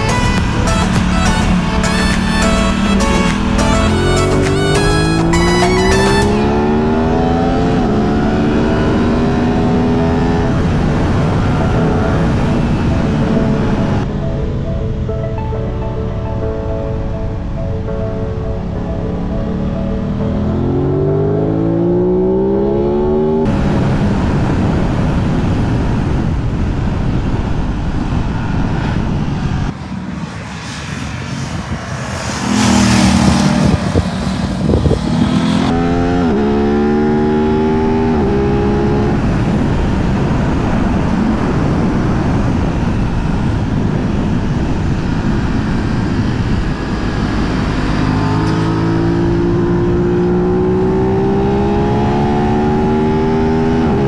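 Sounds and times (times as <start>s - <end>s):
motorcycle engine accelerating: 0.0s - 14.1s, 18.6s - 54.0s
wind rush on microphone: 6.0s - 15.5s, 23.3s - 54.0s.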